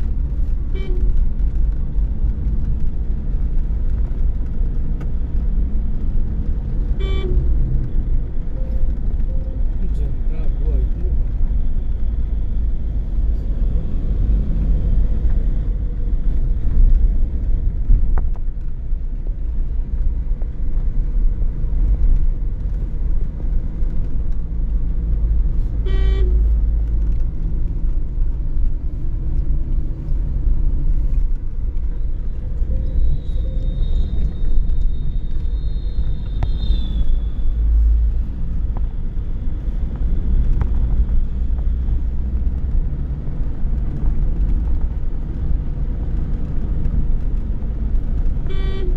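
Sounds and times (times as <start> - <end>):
car driving rumble: 0.0 - 48.9
car horn toot: 0.7 - 1.1, 7.0 - 7.5, 25.8 - 26.4, 48.5 - 48.9.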